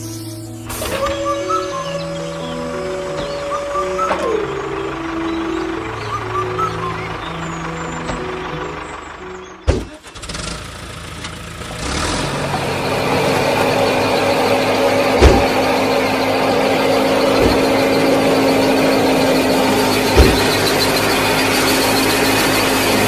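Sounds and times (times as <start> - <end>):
small motor humming: 11.1 - 23.0
sharp knocks: 15.0 - 15.8, 19.8 - 20.8.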